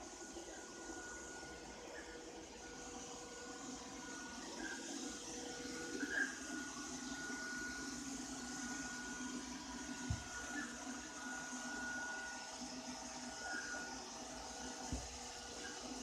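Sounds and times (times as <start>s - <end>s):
robot vacuum cleaner whirring: 0.0s - 16.0s.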